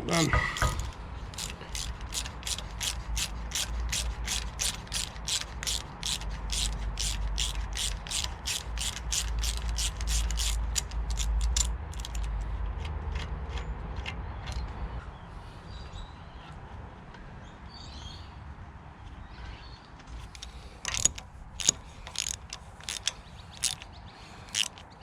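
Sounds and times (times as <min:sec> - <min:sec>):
hand ratchet clicking: 0:00.4 - 0:12.4, 0:20.2 - 0:25.0.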